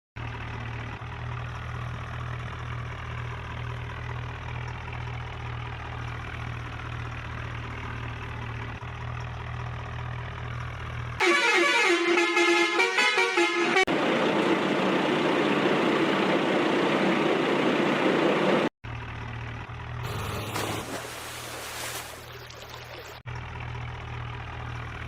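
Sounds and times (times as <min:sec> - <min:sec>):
loud horn: 0:11.2 - 0:13.9.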